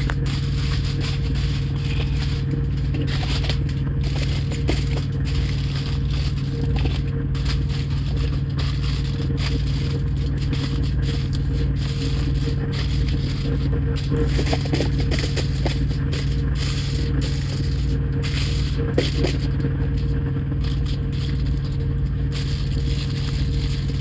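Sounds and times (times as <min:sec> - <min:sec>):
aluminum foil crinkling: 0:00.0 - 0:24.0
truck engine hum: 0:00.0 - 0:24.0.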